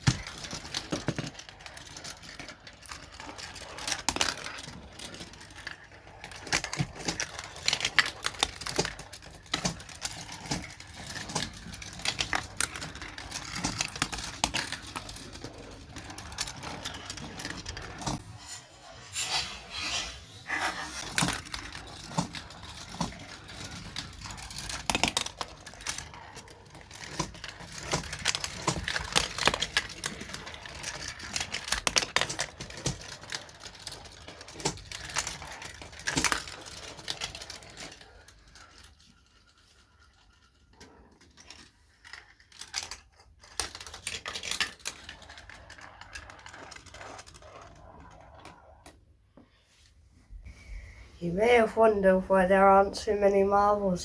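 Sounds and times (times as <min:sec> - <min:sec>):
marbles clattering on plastic track: 0:00.0 - 0:18.4, 0:21.1 - 0:49.5.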